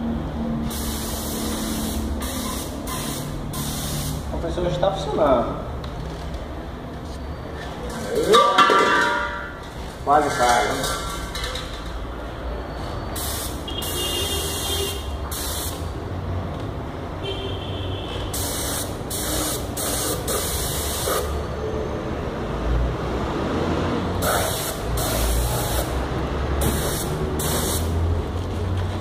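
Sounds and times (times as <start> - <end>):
air compressor motor hum: 0.6 - 4.3, 24.2 - 26.0, 26.6 - 27.9
spray gun hissing bursts: 0.6 - 4.3, 13.2 - 15.9, 18.3 - 21.4, 24.2 - 26.0, 26.6 - 28.0.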